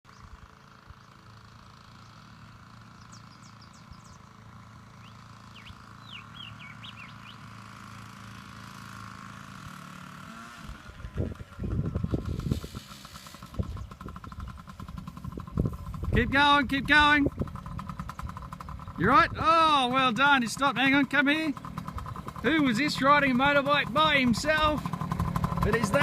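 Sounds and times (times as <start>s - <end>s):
birds chirping: 0.1s - 7.7s, 13.5s - 15.2s, 16.1s - 26.0s
small motorbike engine running: 0.1s - 26.0s.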